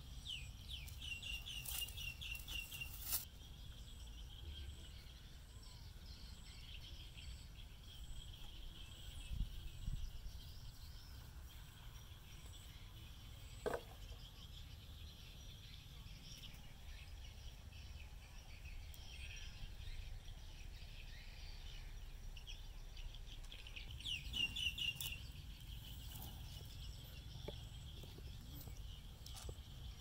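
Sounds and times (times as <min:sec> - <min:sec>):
birds chirping: 0:06.2 - 0:30.0.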